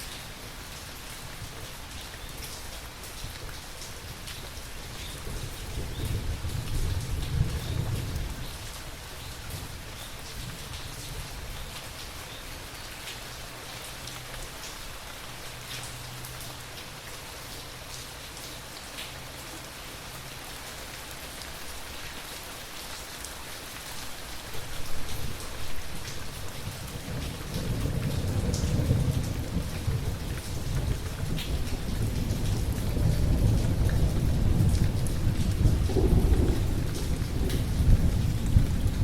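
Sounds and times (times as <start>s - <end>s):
steady rain: 0.0s - 39.0s
rolling thunder: 5.1s - 8.6s, 26.6s - 39.0s.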